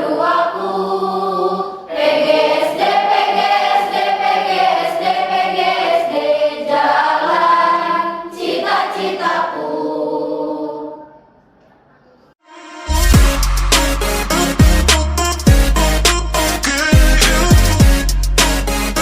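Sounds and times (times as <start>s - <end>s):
choir singing: 0.0s - 11.4s.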